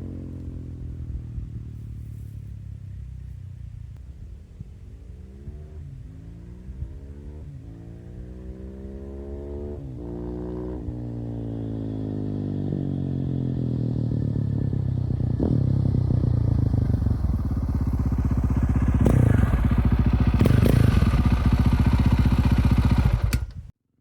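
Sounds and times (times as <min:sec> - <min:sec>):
single-cylinder motorcycle engine thumping: 0:15.3 - 0:23.7
exhaust cracks: 0:16.3 - 0:23.7.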